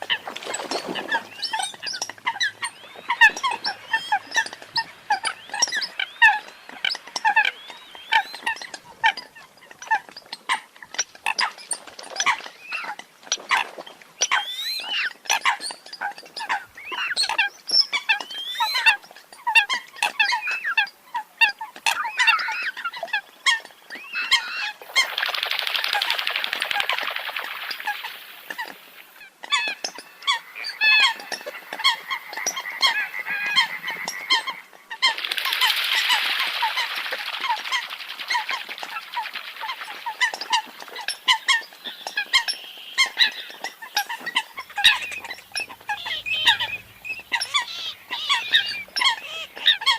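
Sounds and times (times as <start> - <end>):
coot honking calls: 44.4 - 49.9.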